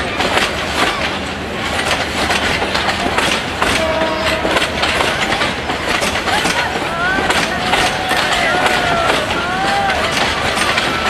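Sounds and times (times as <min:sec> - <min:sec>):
train coaches rumbling: 0:00.0 - 0:11.0
wheels clattering over rail joints: 0:00.0 - 0:11.0.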